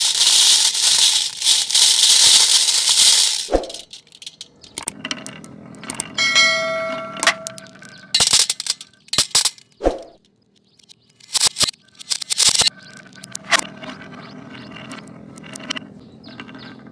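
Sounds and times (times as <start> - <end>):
marbles rattling down wooden run: 0.0 - 9.8, 11.2 - 16.9
bell-like ring: 6.2 - 7.7.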